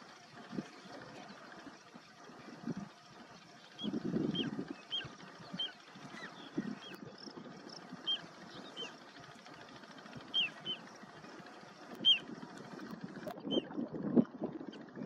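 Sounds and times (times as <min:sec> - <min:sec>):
bird chirps sliding downward: 0:10.3 - 0:10.8.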